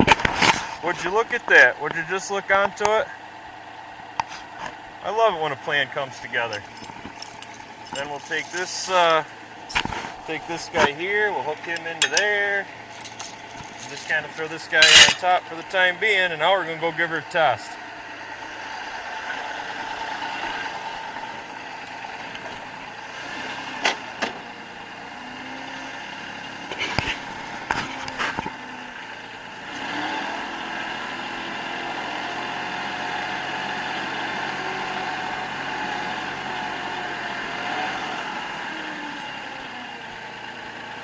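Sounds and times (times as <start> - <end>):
diesel tractor engine running: 0.0 - 41.0
sharp metal clanks: 6.5 - 9.1, 11.6 - 15.3.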